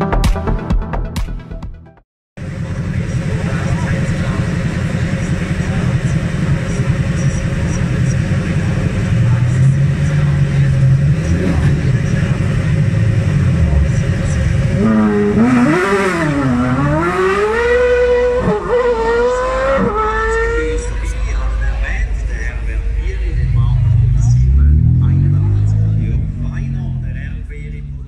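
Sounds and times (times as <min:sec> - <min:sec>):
sports car engine revving: 0:02.4 - 0:28.0.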